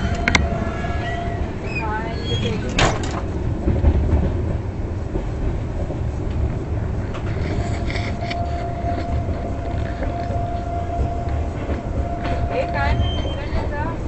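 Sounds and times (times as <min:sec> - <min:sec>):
train rumbling on track: 0:00.0 - 0:14.0
thin steady whine: 0:07.2 - 0:14.0.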